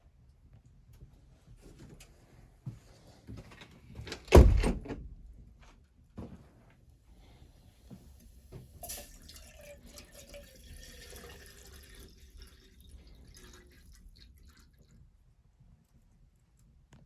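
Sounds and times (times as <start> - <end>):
water pouring and dripping: 8.2 - 15.2.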